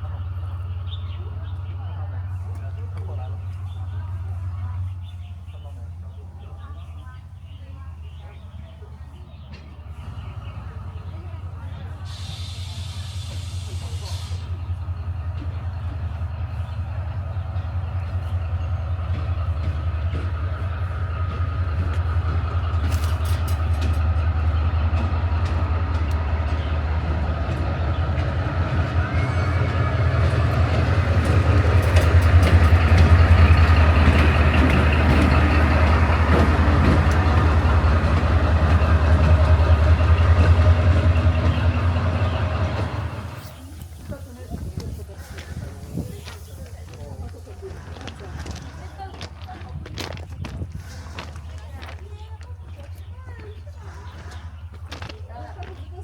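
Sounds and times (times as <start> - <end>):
train rumbling on rails: 0.0 - 56.0
rail clicks: 9.4 - 56.0.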